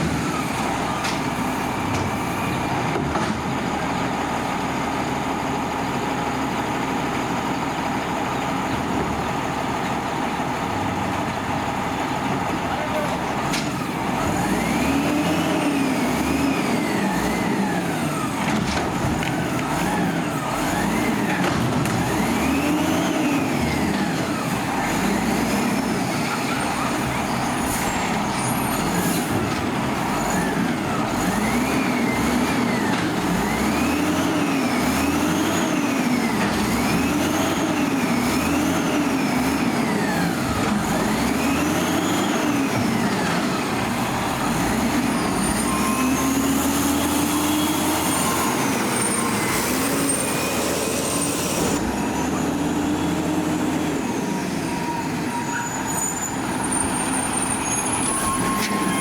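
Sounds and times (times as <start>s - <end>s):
diesel truck engine revving: 0.0s - 59.0s.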